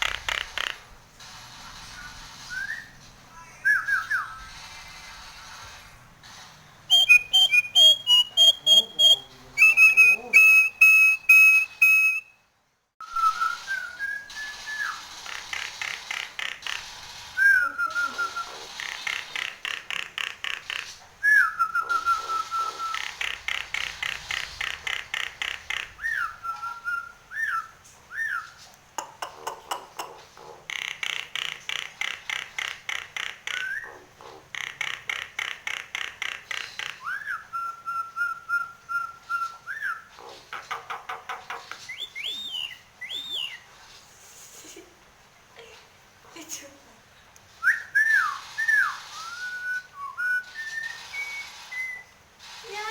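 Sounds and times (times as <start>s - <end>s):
myna whistling: 2.4s - 4.5s, 6.9s - 12.4s, 13.0s - 15.0s, 17.4s - 18.7s, 21.2s - 23.1s, 37.0s - 40.1s, 41.9s - 43.7s, 47.6s - 52.1s
myna chattering: 6.9s - 12.2s.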